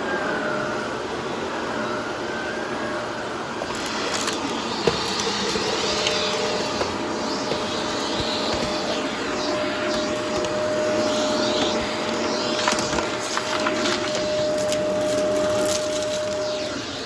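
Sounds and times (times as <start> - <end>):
vacuum cleaner humming: 0.0 - 17.0
fine crackling: 3.6 - 17.0.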